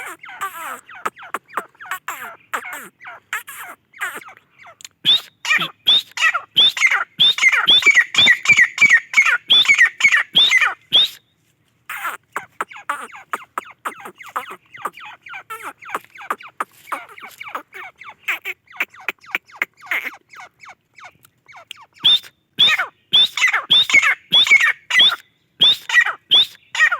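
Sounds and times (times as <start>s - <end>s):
bird calling sharply: 0.0s - 11.2s, 11.9s - 26.9s
soft quick ticking bird notes: 0.0s - 11.2s.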